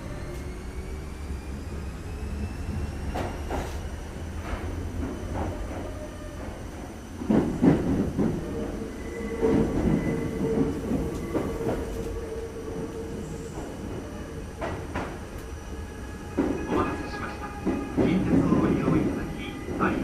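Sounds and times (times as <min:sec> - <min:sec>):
train rumble from inside: 0:00.0 - 0:20.0.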